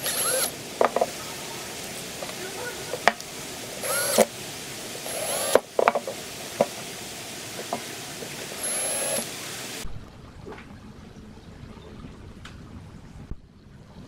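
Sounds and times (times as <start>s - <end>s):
small power tool whining: 0.0s - 1.1s, 3.8s - 4.3s, 5.0s - 5.8s, 8.5s - 9.3s.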